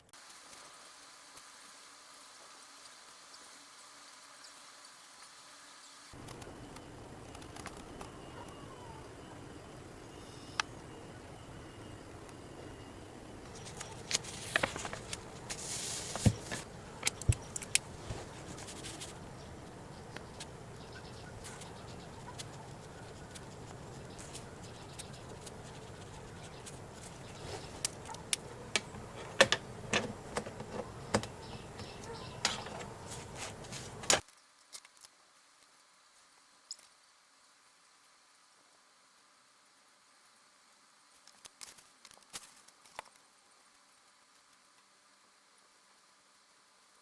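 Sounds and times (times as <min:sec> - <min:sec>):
steady low hiss: 0:00.0 - 0:47.0
stationery clicks and taps: 0:21.3 - 0:34.2.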